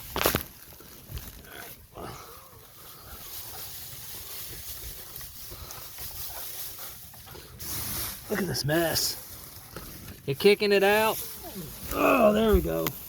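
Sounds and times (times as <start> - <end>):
straw rustling: 0.0 - 13.0
dog grunting and snuffling: 1.4 - 10.2, 11.2 - 12.8.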